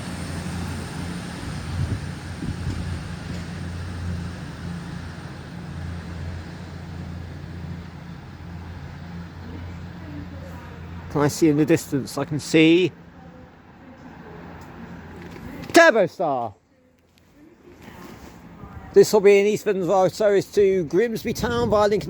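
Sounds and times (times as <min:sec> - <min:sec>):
diesel train engine humming: 0:00.0 - 0:15.2.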